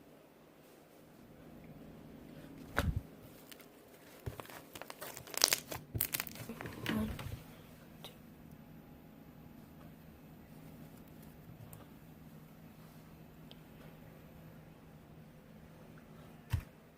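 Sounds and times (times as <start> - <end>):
sticky slime crackles and pops: 4.3 - 6.6.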